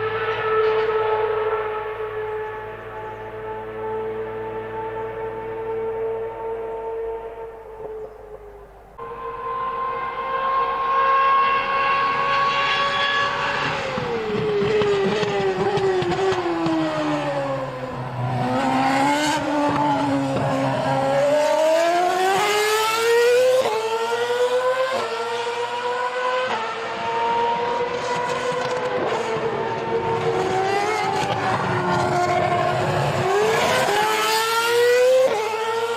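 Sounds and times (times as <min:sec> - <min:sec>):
racing car engine revving: 0:09.0 - 0:35.9.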